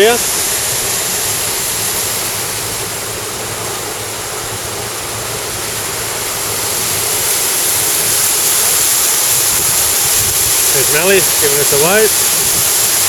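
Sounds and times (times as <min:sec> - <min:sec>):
water rushing over waterfall: 0:00.0 - 0:13.0.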